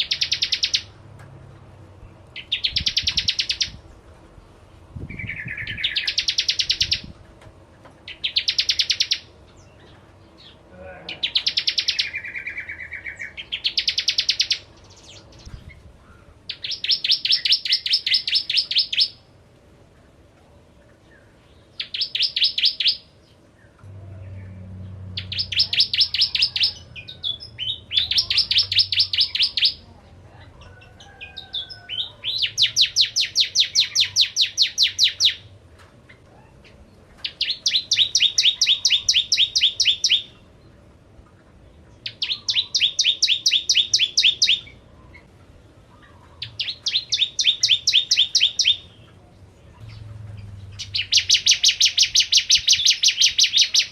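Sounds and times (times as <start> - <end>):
bird chirping in rapid bursts: 0.0 - 1.0, 2.3 - 3.8, 5.0 - 7.2, 8.0 - 9.8, 10.4 - 15.9, 16.5 - 19.3, 21.6 - 23.5, 25.1 - 29.8, 31.4 - 35.5, 36.1 - 40.5, 42.0 - 45.3, 46.0 - 49.2, 49.8 - 53.9.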